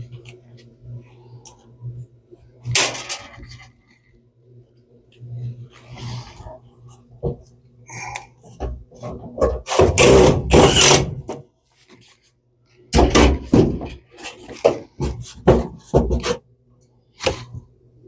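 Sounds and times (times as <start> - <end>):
tool scraping sheet metal: 9.0 - 11.3.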